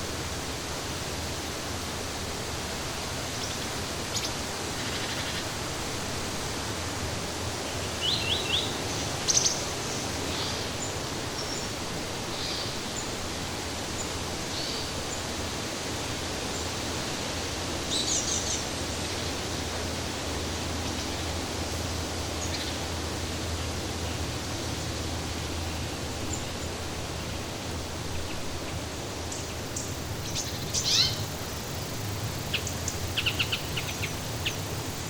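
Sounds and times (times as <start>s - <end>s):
flowing water rushing: 0.0s - 35.0s
small birds chirping: 29.3s - 35.0s.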